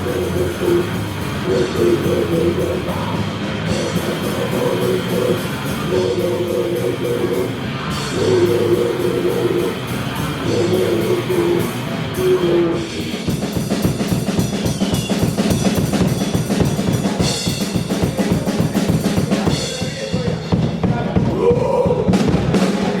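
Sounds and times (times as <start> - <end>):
metal band playing live: 0.0 - 23.0
fast kick and snare drums: 13.2 - 21.3.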